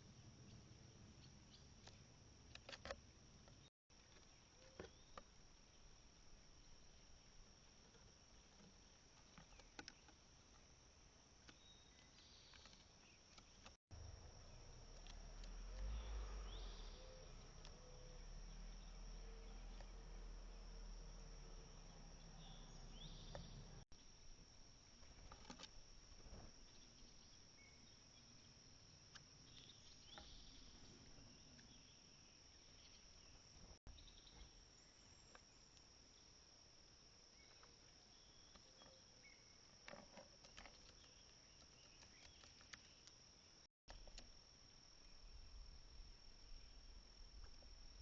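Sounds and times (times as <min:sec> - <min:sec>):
crickets trilling: 0:00.0 - 0:48.0
faint bird chirps: 0:11.4 - 0:24.4, 0:25.2 - 0:36.4, 0:37.0 - 0:48.0
small clicks: 0:39.8 - 0:43.3.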